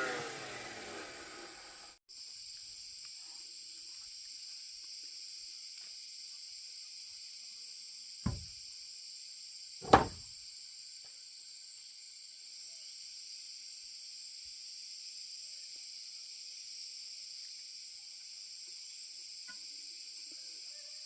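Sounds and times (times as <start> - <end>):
knocks: 8.3 - 8.5, 9.8 - 10.2.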